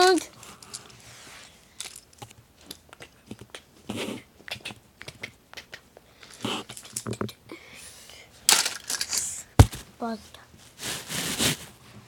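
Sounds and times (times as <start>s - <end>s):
clicks of small hard objects: 8.5s - 9.4s.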